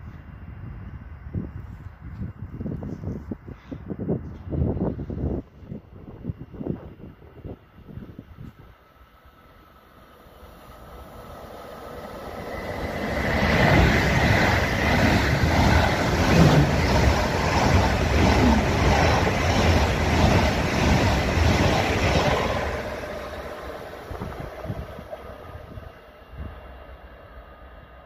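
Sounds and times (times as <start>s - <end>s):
high-speed train passing: 4.0s - 28.0s
roar of wheels on rail: 9.3s - 27.9s.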